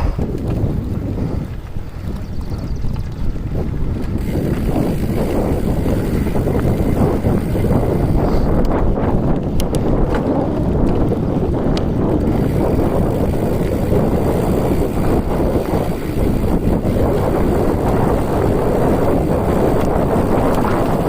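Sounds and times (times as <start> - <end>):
wind buffeting microphone: 0.0 - 21.0
faint ticks: 9.5 - 10.2.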